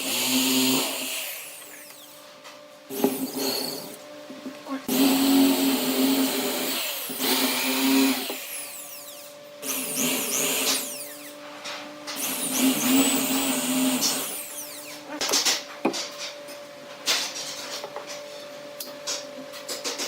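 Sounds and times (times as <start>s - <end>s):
electric power tool running: 0.0s - 4.1s, 4.8s - 15.7s.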